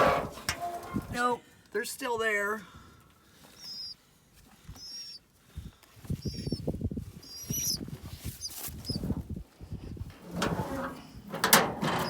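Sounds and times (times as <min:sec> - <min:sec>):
nestling birds peeping: 0:03.4 - 0:04.0, 0:04.7 - 0:05.3, 0:06.1 - 0:09.1.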